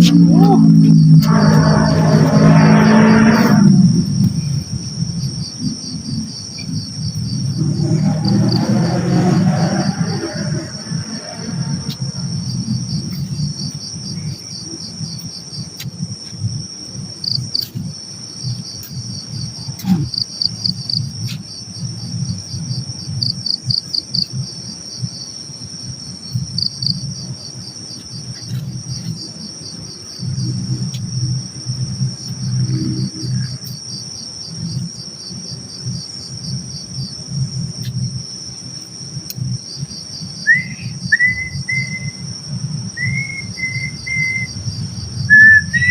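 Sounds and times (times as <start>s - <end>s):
low rumble: 0.0s - 21.2s, 28.6s - 33.8s
crickets chirping: 0.0s - 45.9s
short rising whistle notes: 40.5s - 42.2s, 45.3s - 45.9s.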